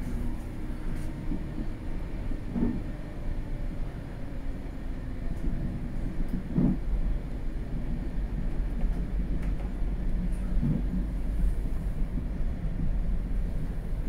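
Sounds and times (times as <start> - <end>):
train wheels rumbling: 4.5 - 14.0.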